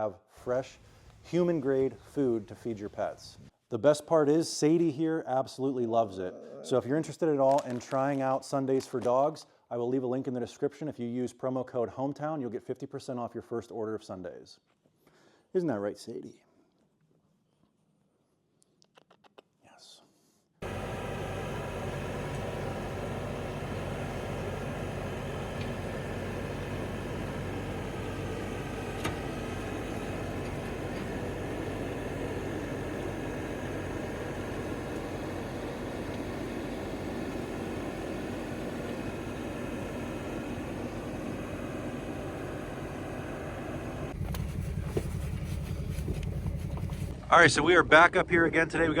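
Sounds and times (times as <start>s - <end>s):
vehicle engine humming: 20.6s - 49.0s.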